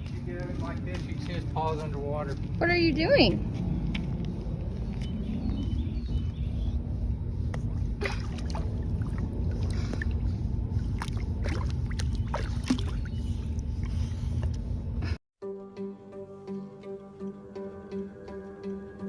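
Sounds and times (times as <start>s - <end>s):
low water rumble: 0.3s - 15.2s
dog splashing while swimming: 7.6s - 14.0s.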